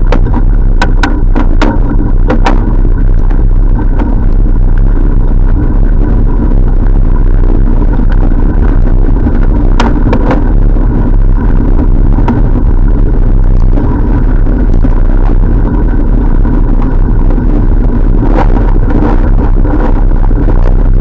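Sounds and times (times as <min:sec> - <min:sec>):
bicycle riding rumble: 0:00.0 - 0:21.0
sharp clicks or knocks: 0:00.1 - 0:02.7.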